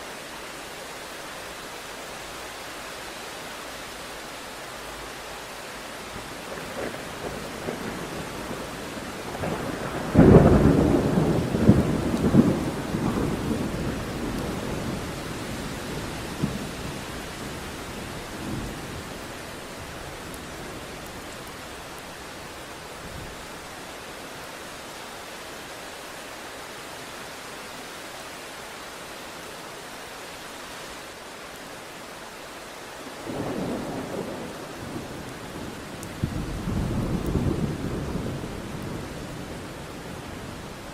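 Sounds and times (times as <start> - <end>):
steady rain: 0.0 - 40.9
rolling thunderclap: 6.5 - 19.0, 33.3 - 39.1.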